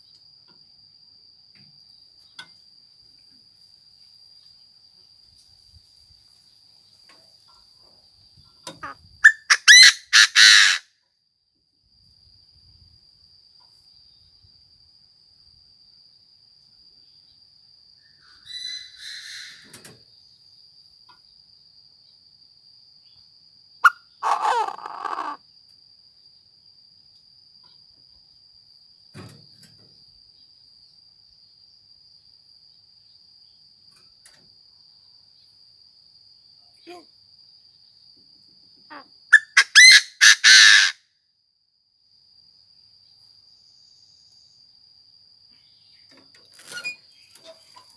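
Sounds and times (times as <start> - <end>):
high insect trill: 0.0 - 47.9
bird calling in harsh bursts: 8.8 - 10.8, 18.4 - 19.7, 23.8 - 25.4, 38.9 - 41.0.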